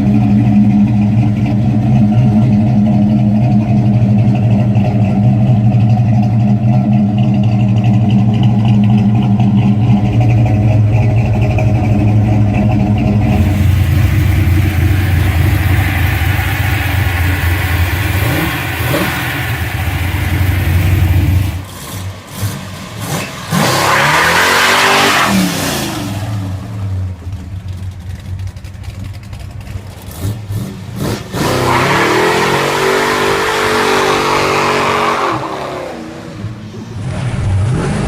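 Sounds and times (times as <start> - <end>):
car engine idling: 0.0 - 23.7, 26.3 - 31.3.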